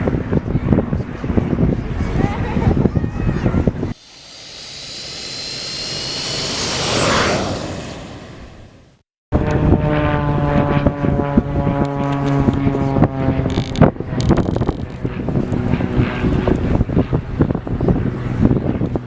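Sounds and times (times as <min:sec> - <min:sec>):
engine running: 0:03.9 - 0:08.7.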